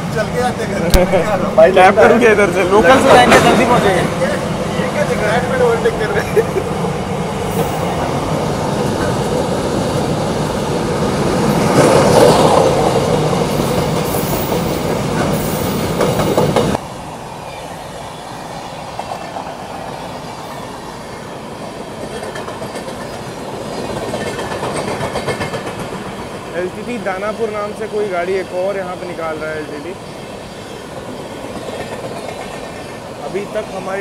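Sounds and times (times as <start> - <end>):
steady rail rumble: 0.0 - 34.0
train wheels clattering: 21.9 - 27.0.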